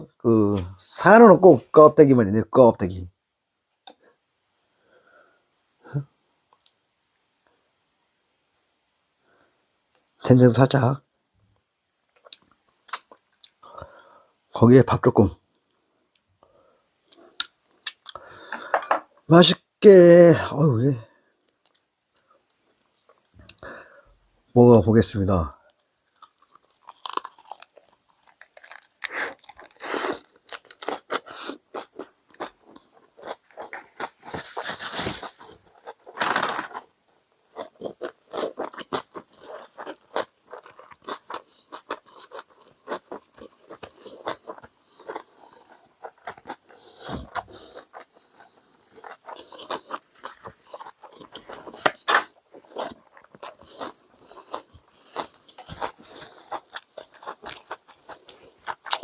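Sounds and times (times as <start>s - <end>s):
person chewing crunchy food: 26.0s - 59.0s.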